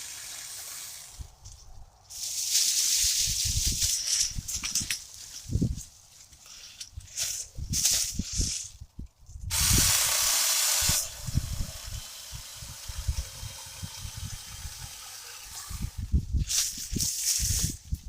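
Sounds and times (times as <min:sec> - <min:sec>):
loud hiss: 0:02.0 - 0:04.4, 0:09.5 - 0:18.0
chainsaw cutting wood: 0:09.5 - 0:16.1.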